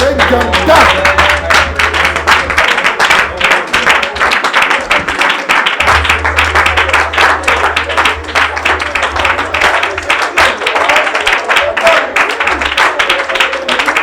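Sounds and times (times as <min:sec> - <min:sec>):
low steady bass note: 0:00.0 - 0:03.8, 0:05.8 - 0:10.8
congregation clapping fast: 0:00.0 - 0:14.0
voices in group prayer: 0:00.0 - 0:14.0.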